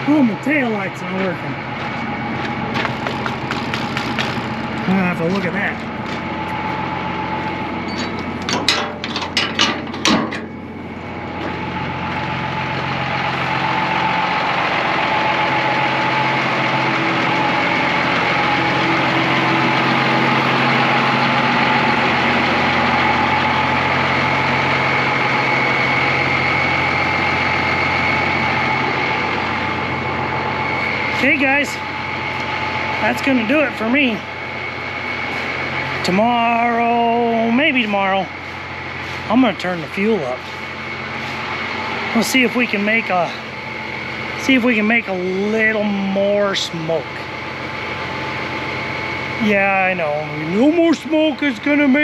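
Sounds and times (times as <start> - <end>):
diesel truck engine running: 0.0 - 52.0
high turbocharger whistle: 10.6 - 52.0.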